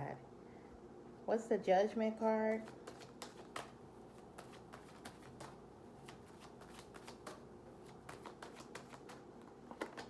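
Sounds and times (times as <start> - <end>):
cards clicking and flicking: 2.6 - 10.0.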